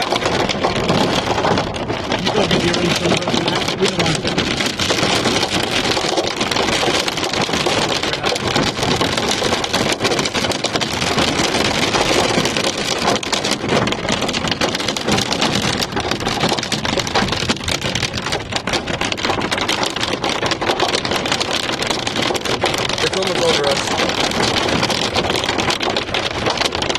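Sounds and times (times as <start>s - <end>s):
hailstones ticking on car: 0.0s - 26.9s
rain downpour on car: 0.0s - 26.9s.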